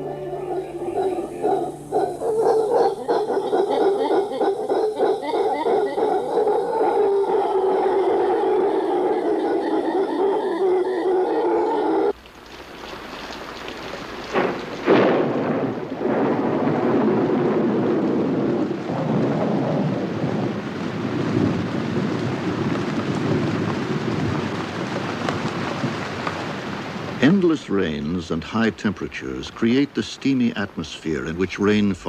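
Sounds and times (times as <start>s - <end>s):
steady pitched tone: 0.0s - 3.0s
heavy rain: 0.0s - 32.0s
thunder claps: 14.3s - 27.2s.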